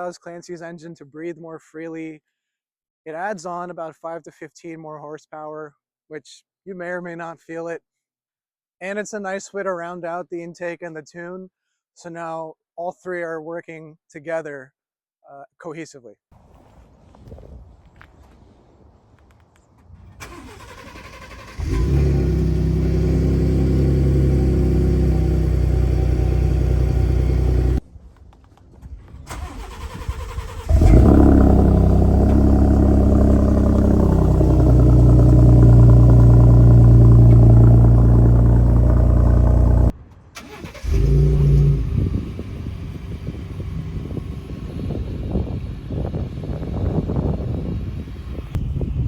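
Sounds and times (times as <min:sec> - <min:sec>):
truck engine starting and idling: 0:19.7 - 0:27.8, 0:28.8 - 0:48.8.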